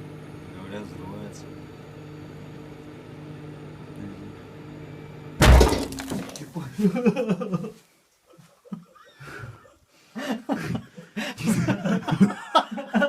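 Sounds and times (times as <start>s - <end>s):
people laughing softly: 6.7s - 13.0s.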